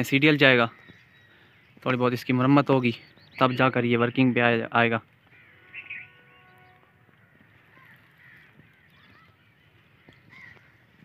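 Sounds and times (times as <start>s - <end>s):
short bird calls: 5.2s - 11.0s.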